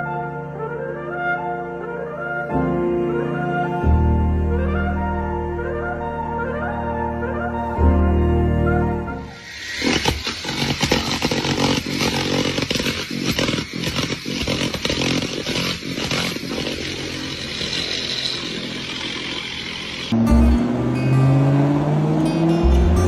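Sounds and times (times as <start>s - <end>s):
small engine running hard: 9.4s - 23.0s.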